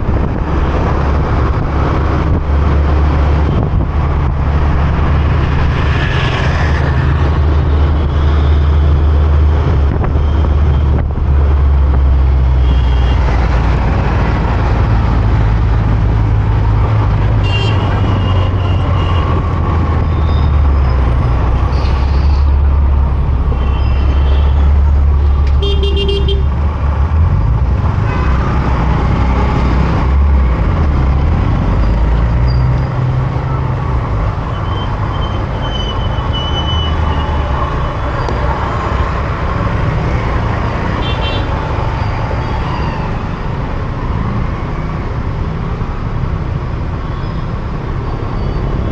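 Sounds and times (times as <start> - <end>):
motorcycle engine and road noise: 0.0 - 48.9
vehicle horns tooting: 17.4 - 19.2, 25.5 - 26.5.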